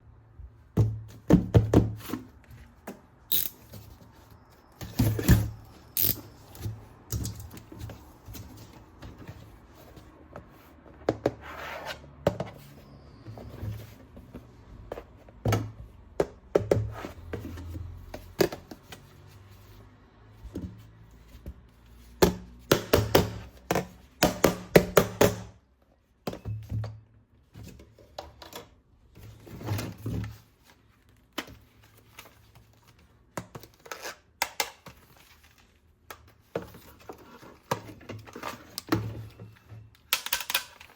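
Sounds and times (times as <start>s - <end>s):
plastic parts clicking and knocking: 36.1s - 40.9s.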